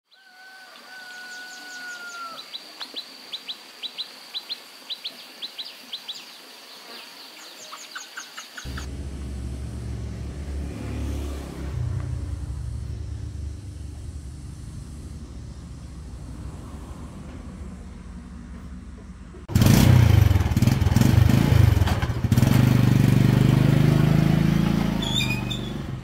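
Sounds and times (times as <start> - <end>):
birds whistling and chirping: 7.4 - 8.9, 25.0 - 25.8
low engine rumble: 8.7 - 21.0.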